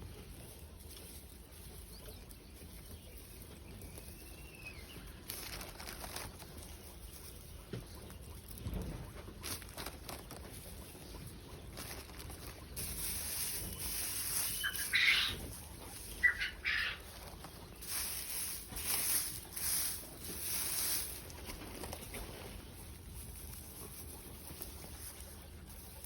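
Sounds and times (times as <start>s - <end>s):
high rustling hiss: 11.8s - 26.0s
short bird calls: 13.8s - 15.5s.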